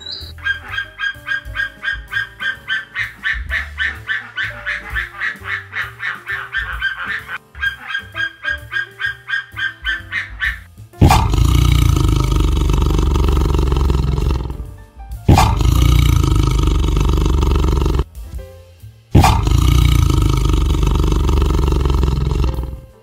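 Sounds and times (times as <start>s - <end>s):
background music: 0.0s - 23.0s
tiger roaring: 11.0s - 14.7s, 15.3s - 18.1s, 19.2s - 23.0s.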